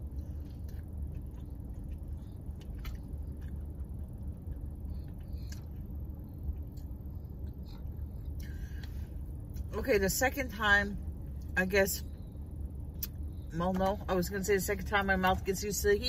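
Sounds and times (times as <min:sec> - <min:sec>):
person chewing: 0:00.0 - 0:08.9
car cabin hum: 0:00.0 - 0:16.0.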